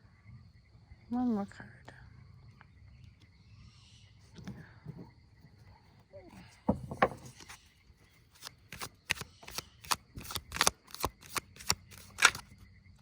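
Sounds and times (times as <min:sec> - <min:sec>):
cards being shuffled: 0:08.4 - 0:12.5.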